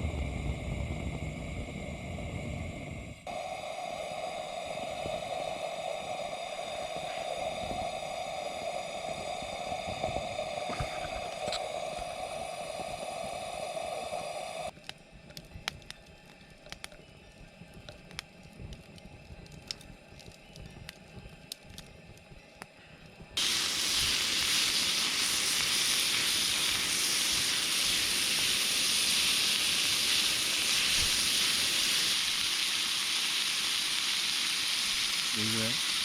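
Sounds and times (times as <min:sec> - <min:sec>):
steady hiss: 0:00.0 - 0:14.7, 0:23.4 - 0:36.0
campfire crackling and popping: 0:00.1 - 0:36.0.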